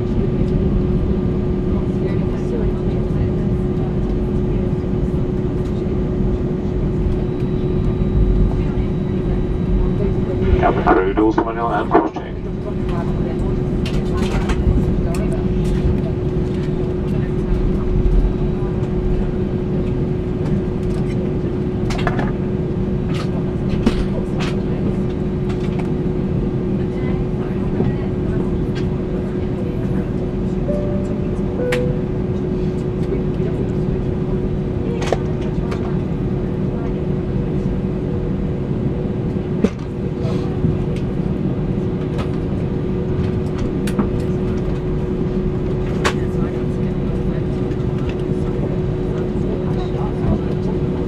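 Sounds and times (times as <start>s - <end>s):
droning hum: 0.0s - 22.8s.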